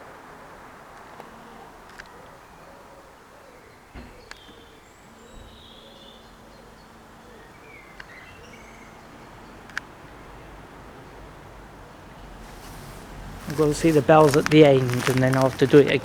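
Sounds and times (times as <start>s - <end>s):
faint outdoor hum: 0.0s - 16.0s
small birds chirping: 0.9s - 16.0s.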